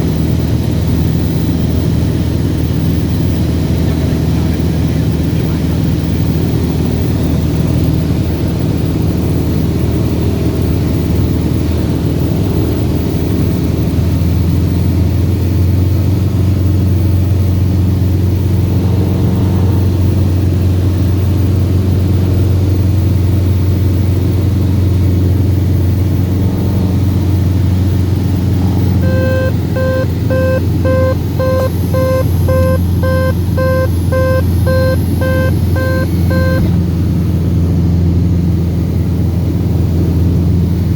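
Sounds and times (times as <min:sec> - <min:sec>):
propeller plane engine drone: 0:00.0 - 0:40.9
cockpit warning beeps: 0:28.7 - 0:36.8.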